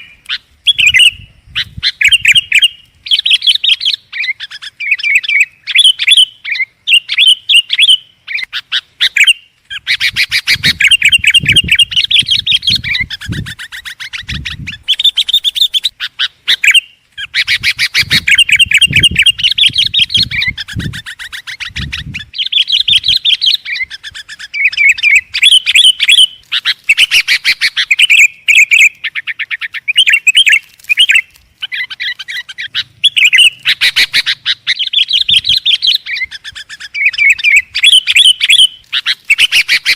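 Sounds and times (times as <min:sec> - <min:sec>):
bulbul singing chirps and trills: 0:00.0 - 0:39.9.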